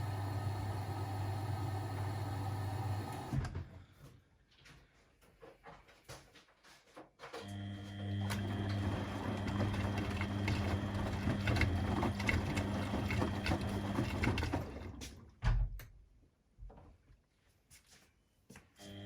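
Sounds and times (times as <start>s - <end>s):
washing machine motor humming: 0.0s - 3.5s, 7.5s - 15.0s.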